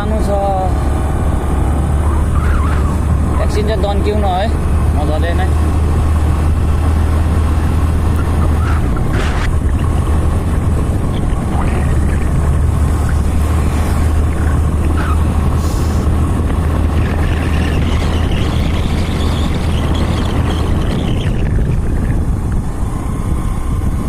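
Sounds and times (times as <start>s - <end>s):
motorcycle engine running: 0.0s - 24.0s
wind rumble on microphone: 0.0s - 24.0s
high whine: 1.5s - 24.0s.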